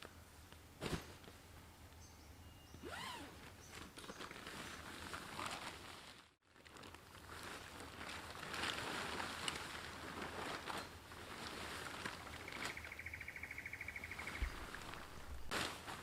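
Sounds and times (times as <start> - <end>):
camp gear rustling and knocking: 0.8 - 1.4
high trill of bird or insect: 12.4 - 14.7.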